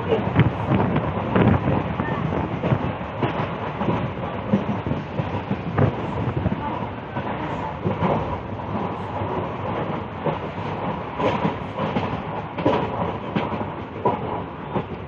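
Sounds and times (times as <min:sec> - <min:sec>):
train rumbling: 0:00.0 - 0:15.0
wheels clacking over rails: 0:00.0 - 0:15.0.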